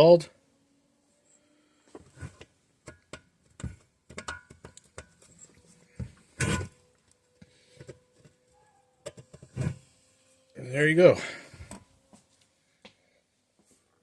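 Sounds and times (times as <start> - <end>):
metal part clunk: 6.3 - 6.8.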